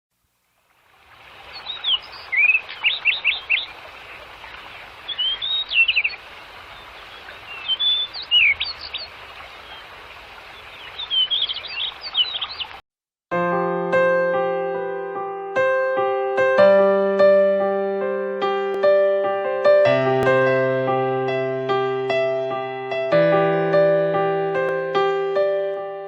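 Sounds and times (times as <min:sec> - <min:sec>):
songbirds chirping: 0:01.2 - 0:12.8.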